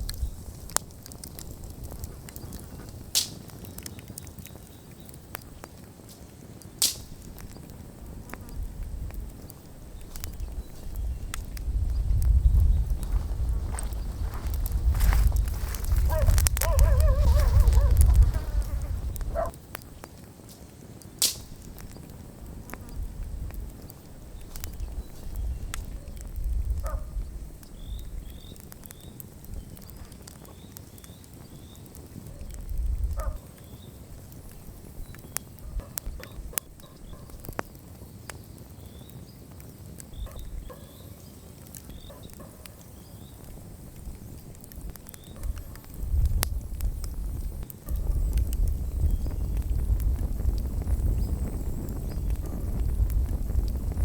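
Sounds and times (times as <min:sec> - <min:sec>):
campfire crackling and popping: 0:00.0 - 0:54.0
low rumble: 0:07.9 - 0:19.5.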